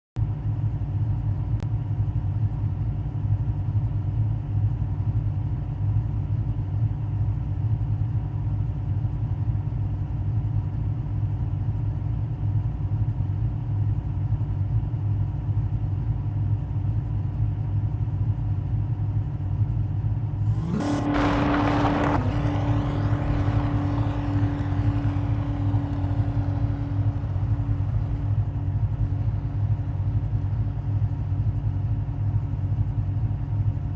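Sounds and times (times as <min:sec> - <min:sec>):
car engine and road hum: 0:20.3 - 0:33.8
loud rushing noise: 0:20.5 - 0:28.4.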